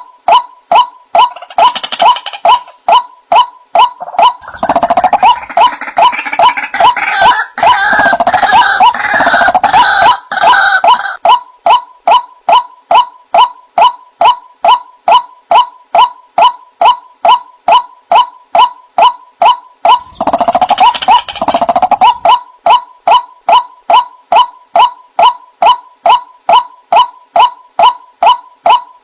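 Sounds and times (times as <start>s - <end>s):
waterhen calling: 3.8s - 13.5s, 19.0s - 23.3s.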